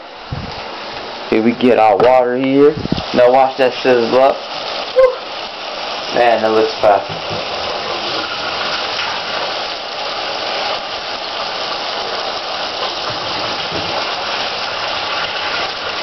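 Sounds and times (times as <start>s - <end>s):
food sizzling in a frying pan: 1.2s - 16.0s.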